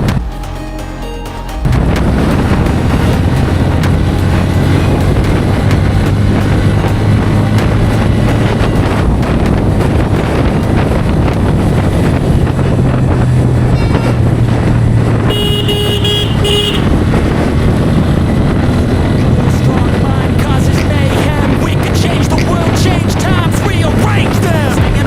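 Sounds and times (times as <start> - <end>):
road and wind noise: 0.0 - 0.4, 1.5 - 25.0
motorcycle engine running: 1.6 - 25.0
vehicle horn: 15.2 - 17.2.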